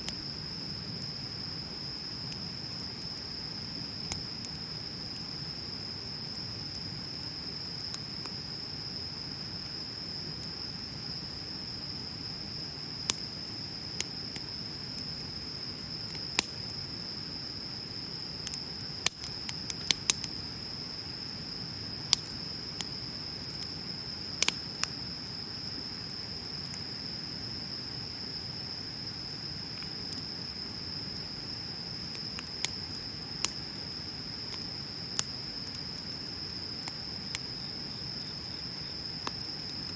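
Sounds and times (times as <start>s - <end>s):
high insect trill: 0.0s - 39.9s
bonfire pops and snaps: 1.8s - 8.4s, 13.0s - 17.6s, 18.4s - 20.5s, 22.1s - 26.9s, 31.5s - 37.5s, 38.4s - 39.9s.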